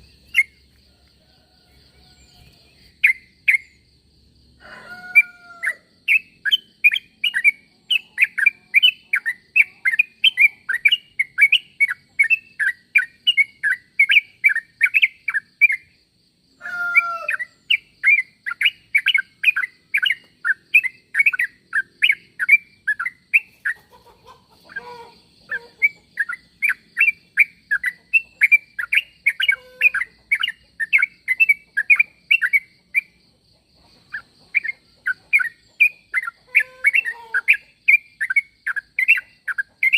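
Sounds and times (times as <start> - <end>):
bulbul chirping: 0.0 - 0.7, 2.7 - 3.8, 6.0 - 15.9, 17.4 - 33.2, 34.1 - 39.9.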